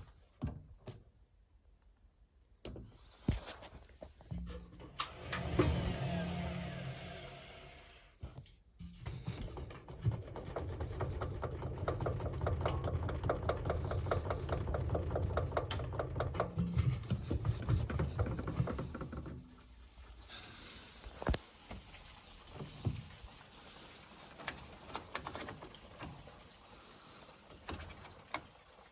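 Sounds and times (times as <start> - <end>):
washing machine running: 4.9 - 8.2, 9.2 - 20.1.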